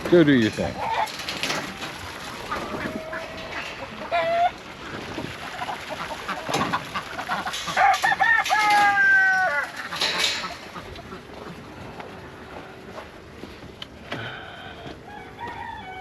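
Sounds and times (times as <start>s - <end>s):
chickens clucking: 0.0s - 16.0s
rooster crowing: 7.7s - 9.8s, 15.0s - 16.0s.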